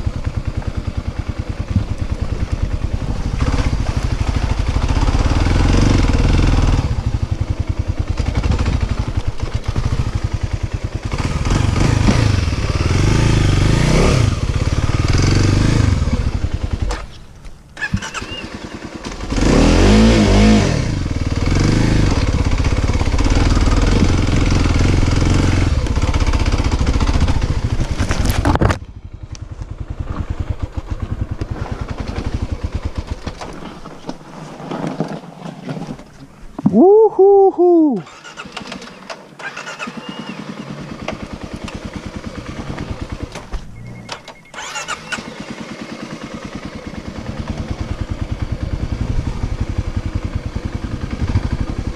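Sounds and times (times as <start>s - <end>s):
dirt bike engine revving: 0.0s - 17.1s, 17.8s - 33.7s, 37.3s - 51.9s.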